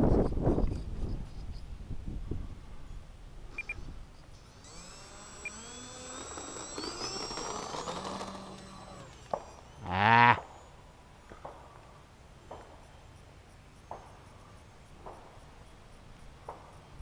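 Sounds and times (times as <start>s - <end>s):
electric motor whining: 3.7s - 10.5s.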